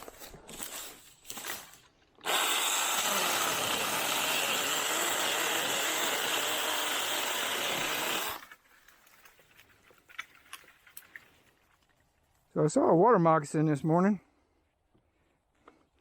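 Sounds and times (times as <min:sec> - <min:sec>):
mini chainsaw cutting wood: 0:00.7 - 0:08.6.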